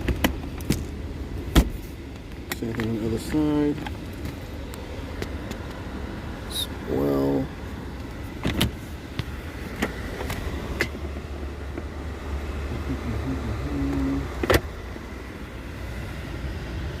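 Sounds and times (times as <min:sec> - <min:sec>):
light clicks of interior controls: 0:00.0 - 0:05.9, 0:06.9 - 0:12.0, 0:12.6 - 0:14.8
car engine idling: 0:00.0 - 0:17.0.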